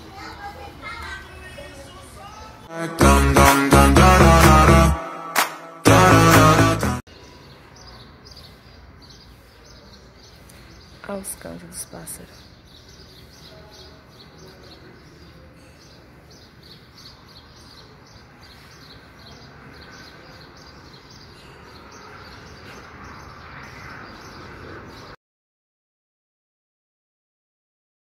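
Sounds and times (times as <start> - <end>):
steady background noise: 0.0 - 2.7
bird chirping: 7.1 - 25.2.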